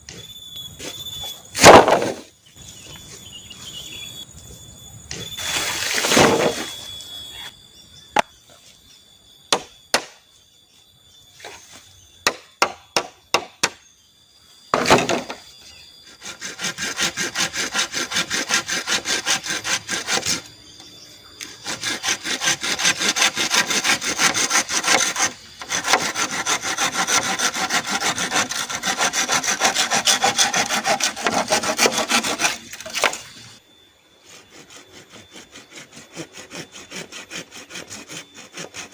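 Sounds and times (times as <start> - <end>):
hand saw cutting bamboo: 16.2 - 20.5, 21.4 - 33.2, 34.2 - 38.9.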